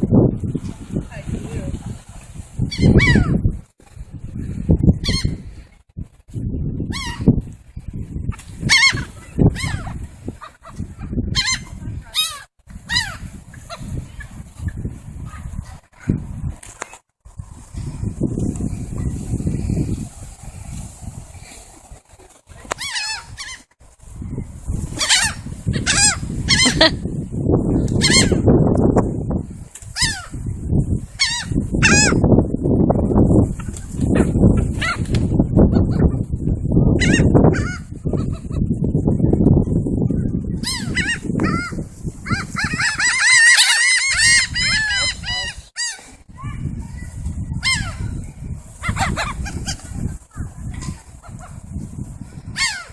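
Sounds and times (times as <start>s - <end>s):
birds calling: 25.0s - 26.9s, 40.6s - 46.0s
birds honking: 42.4s - 46.0s.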